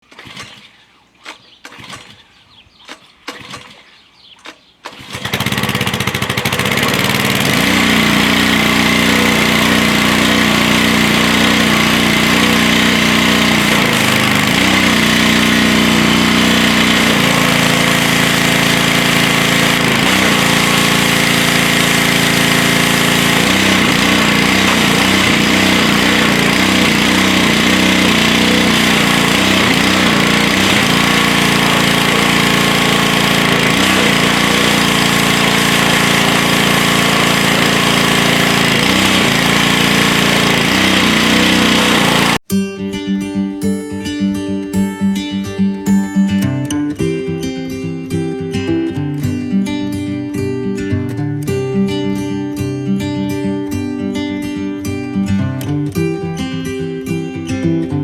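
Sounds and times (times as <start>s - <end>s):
pressure washer engine running: 0.0s - 2.2s, 4.9s - 42.5s.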